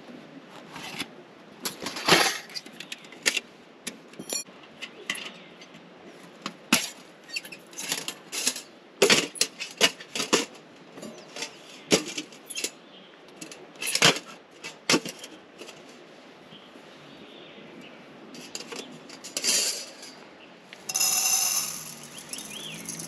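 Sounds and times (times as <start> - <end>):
hard objects clinking and knocking: 20.9 - 23.0.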